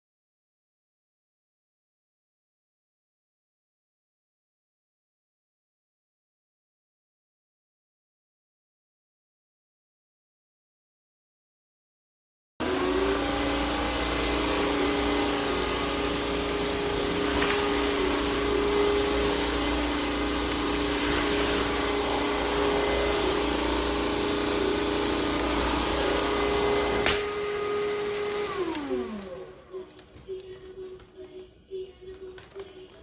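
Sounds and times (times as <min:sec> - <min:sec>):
vacuum mop motor whine: 0:12.6 - 0:30.0.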